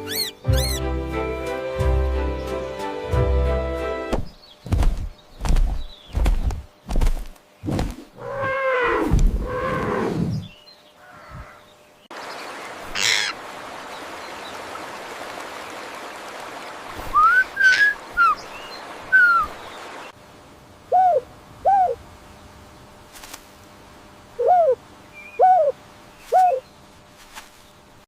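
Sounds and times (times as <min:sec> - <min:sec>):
low hooting bird calls: 0:08.2 - 0:11.7, 0:20.9 - 0:22.0, 0:24.4 - 0:26.7.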